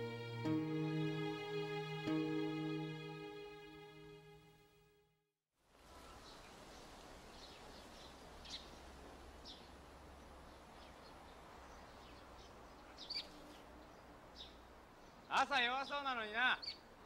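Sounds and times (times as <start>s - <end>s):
bird chirps: 12.8s - 13.4s.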